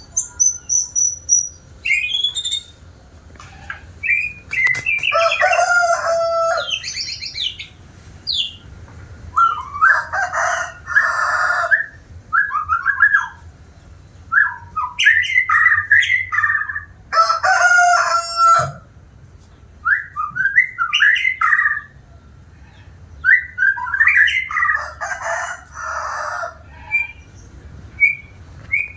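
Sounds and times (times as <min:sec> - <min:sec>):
bird singing whistles and rattles: 0:00.0 - 0:02.8, 0:03.7 - 0:05.6, 0:19.8 - 0:21.9, 0:28.0 - 0:28.9.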